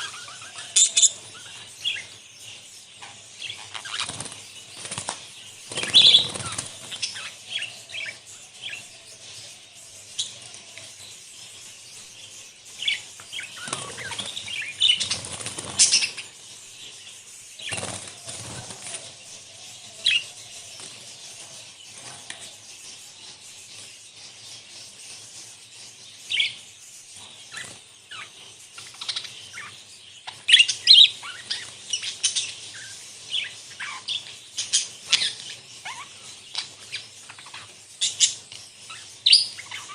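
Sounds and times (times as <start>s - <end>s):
budgerigars chirping: 0.0s - 39.9s
wing flapping: 13.6s - 16.2s, 17.6s - 19.2s.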